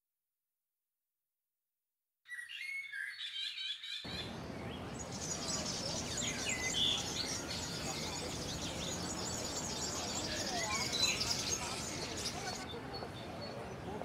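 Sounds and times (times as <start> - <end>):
birds chirping: 2.3 - 14.0
noisy outdoor ambience: 4.1 - 14.0.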